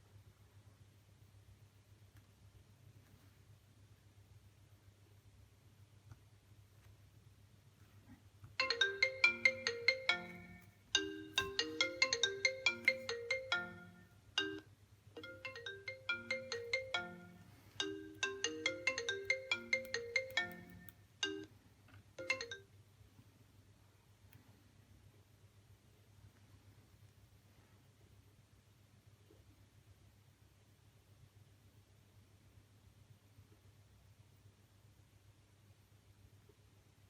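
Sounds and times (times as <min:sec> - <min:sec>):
faint low hum: 0:00.0 - 0:37.0
phone ringtone melody: 0:08.6 - 0:21.5, 0:22.2 - 0:22.7.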